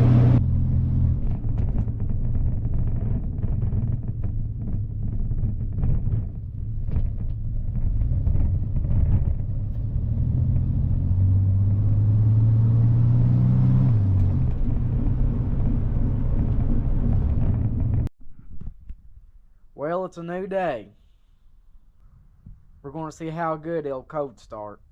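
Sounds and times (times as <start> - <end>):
car engine running: 0.0 - 18.1.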